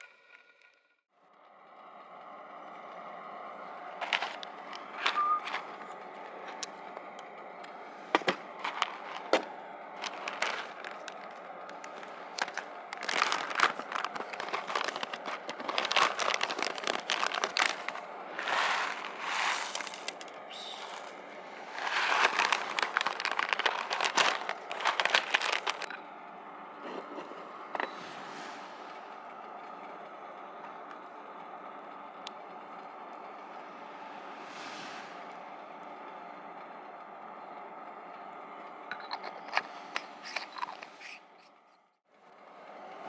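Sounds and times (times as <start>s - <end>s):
rustling crinkling noise: 2.9s - 25.9s, 38.9s - 41.5s
sharp handling clicks and knocks: 4.0s - 21.1s.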